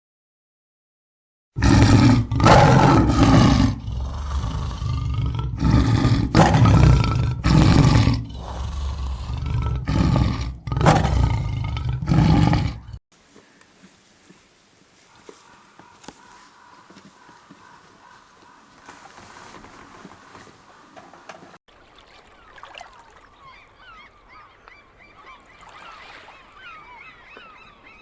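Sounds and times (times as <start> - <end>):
big cat roaring and growling: 1.6 - 13.0.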